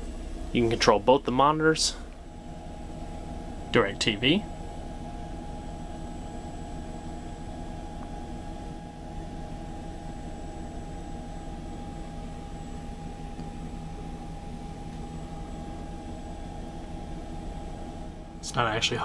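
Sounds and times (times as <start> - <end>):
climate fan: 0.0 - 19.0
constant high whine: 0.0 - 19.0
idling engine hum in cabin: 0.0 - 19.0.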